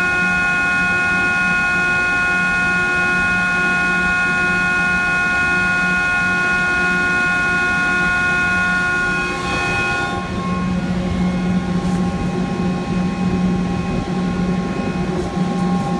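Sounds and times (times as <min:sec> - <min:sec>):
electric motor whining: 0:05.7 - 0:15.9.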